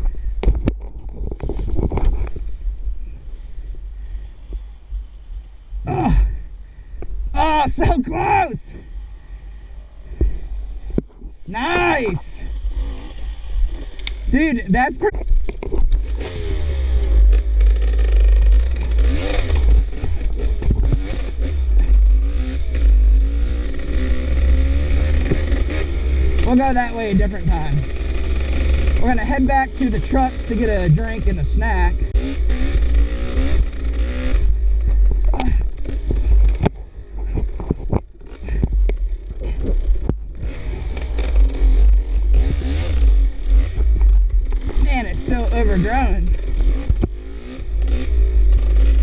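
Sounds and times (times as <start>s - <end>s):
wind rumble on microphone: 0.0s - 5.9s, 19.5s - 22.1s, 33.4s - 47.8s
dirt bike engine revving: 11.6s - 15.2s, 15.9s - 49.0s
knocks and clatter: 17.3s - 22.1s.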